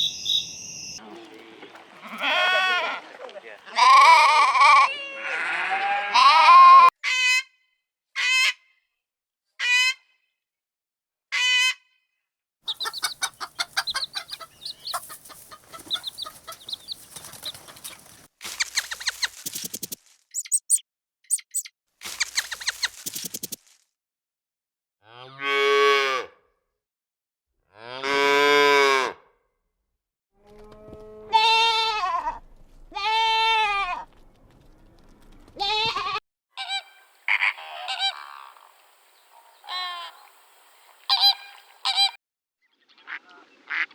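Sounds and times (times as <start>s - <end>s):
cow mooing: 1.0s - 3.0s, 3.8s - 6.6s
sheep bleating: 1.0s - 6.9s, 30.5s - 34.1s, 35.6s - 36.2s
chickens clucking and peeping: 12.7s - 19.3s.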